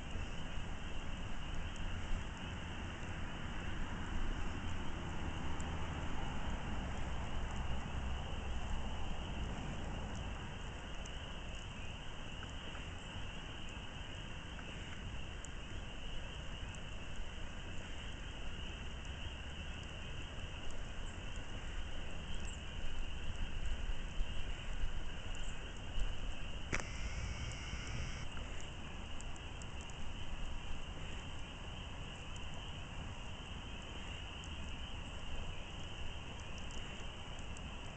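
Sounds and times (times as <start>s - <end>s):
campfire crackling: 0.0s - 15.7s, 16.4s - 37.9s
crickets chirring: 21.9s - 37.9s
brief tone: 26.8s - 28.3s.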